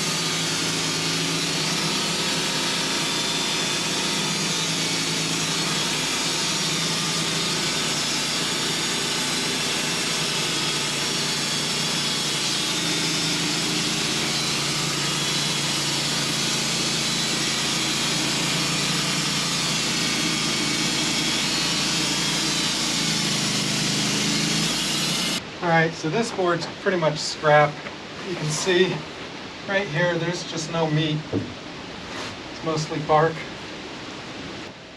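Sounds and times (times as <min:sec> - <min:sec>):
sawmill blade sawing log: 0:00.0 - 0:25.4.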